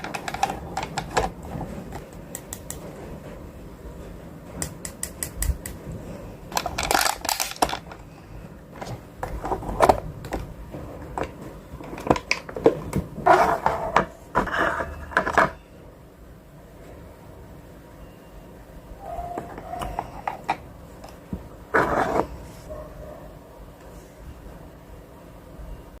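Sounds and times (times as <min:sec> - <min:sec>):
plastic containers clicking and knocking: 0:00.0 - 0:02.7, 0:06.5 - 0:08.1, 0:08.8 - 0:15.6.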